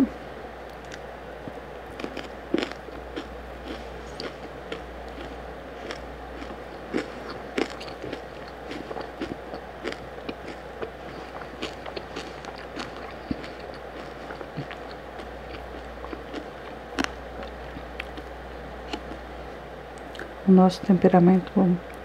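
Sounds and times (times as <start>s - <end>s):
wet chewing: 1.9s - 19.2s.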